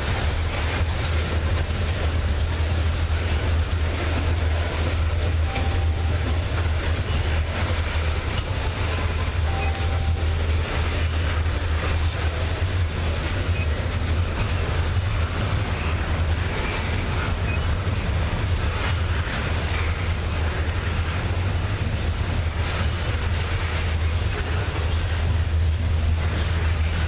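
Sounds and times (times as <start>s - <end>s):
locomotive engine hum: 0.0s - 27.0s.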